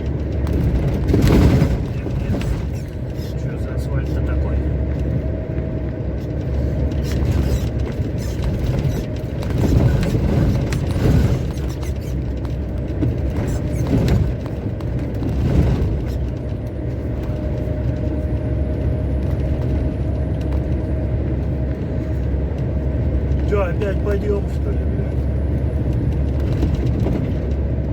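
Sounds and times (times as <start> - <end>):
road noise: 0.0 - 27.9
truck engine drone: 0.0 - 27.9.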